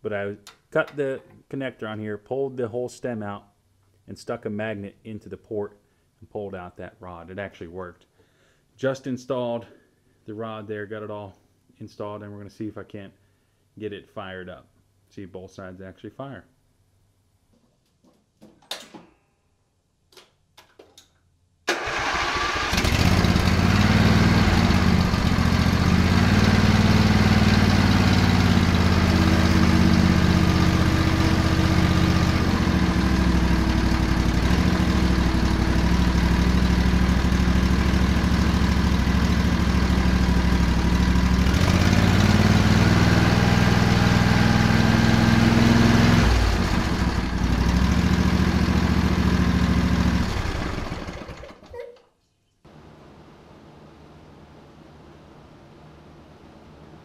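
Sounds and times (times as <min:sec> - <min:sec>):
riding mower engine running: 0:21.7 - 0:51.7.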